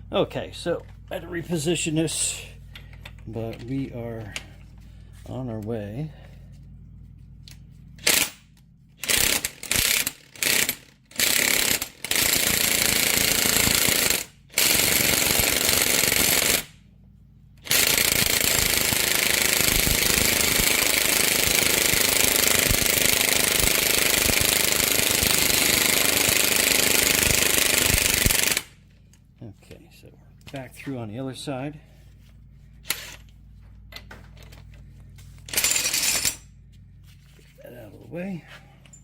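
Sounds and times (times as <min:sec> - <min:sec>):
electric impact wrench hammering: 0:07.5 - 0:16.8, 0:17.6 - 0:28.9, 0:32.8 - 0:34.7, 0:35.3 - 0:36.7.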